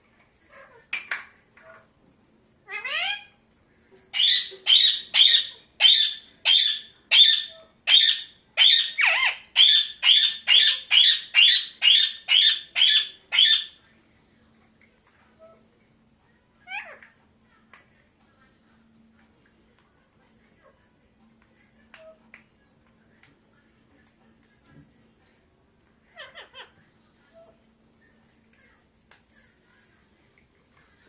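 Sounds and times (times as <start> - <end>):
parakeet squawking: 2.7 - 3.3, 4.2 - 13.8.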